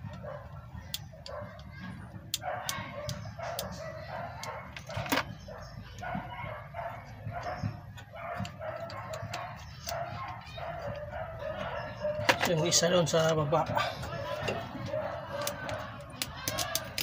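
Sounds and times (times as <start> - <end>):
sharp clicks and taps: 15.3 - 17.0.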